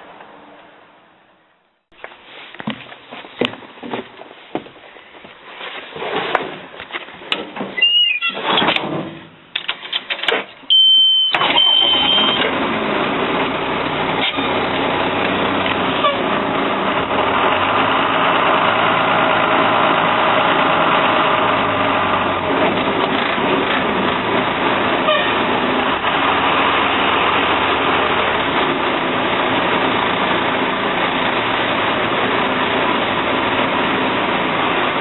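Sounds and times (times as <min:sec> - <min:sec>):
high steady beep: 0:10.7 - 0:12.4
diesel engine starting and idling: 0:10.7 - 0:35.0.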